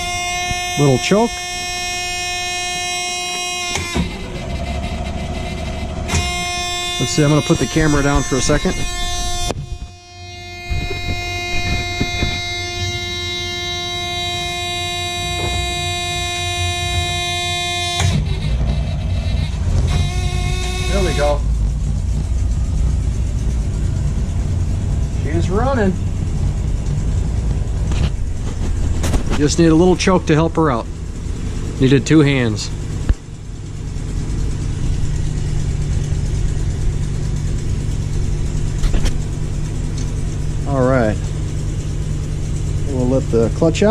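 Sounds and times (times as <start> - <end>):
warning buzzer tone: 0.0 - 21.6
bus engine running: 0.0 - 43.9
engine cranking on starter: 3.7 - 9.4.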